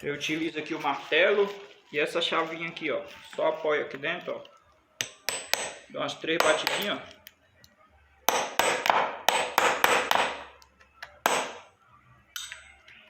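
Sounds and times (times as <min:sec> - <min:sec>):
hammer striking metal: 0:05.0 - 0:07.0, 0:08.3 - 0:10.6, 0:11.2 - 0:11.7, 0:12.4 - 0:12.7.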